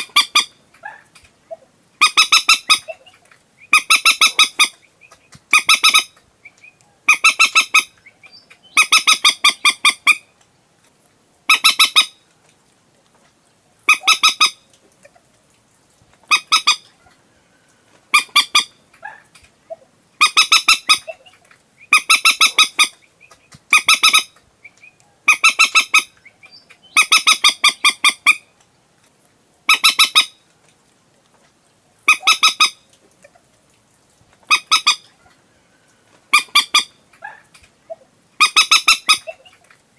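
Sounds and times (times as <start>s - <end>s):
moorhen stuttering calls: 0.0s - 10.3s, 11.5s - 12.2s, 13.9s - 15.2s, 16.3s - 16.9s, 18.1s - 28.5s, 29.7s - 30.4s, 32.1s - 32.8s, 34.4s - 35.2s, 36.3s - 39.8s.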